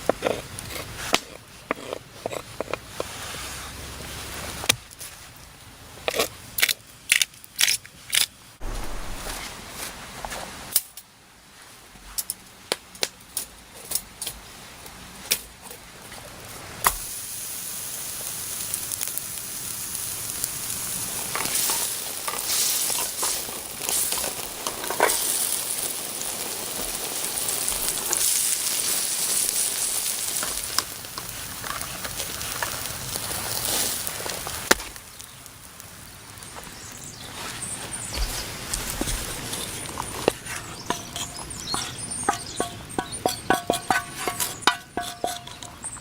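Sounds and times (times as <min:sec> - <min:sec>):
food sizzling: 0:08.6 - 0:10.0, 0:16.8 - 0:46.0.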